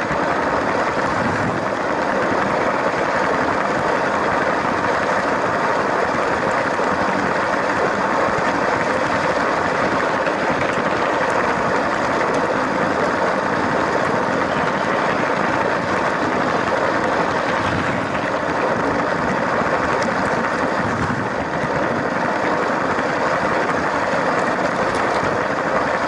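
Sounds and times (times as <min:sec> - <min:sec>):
toy train whirring and rolling: 0:00.0 - 0:26.0.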